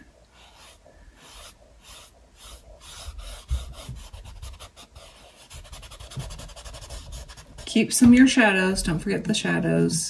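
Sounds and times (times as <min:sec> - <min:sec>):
paintbrush scrubbing on canvas: 0:00.4 - 0:07.7.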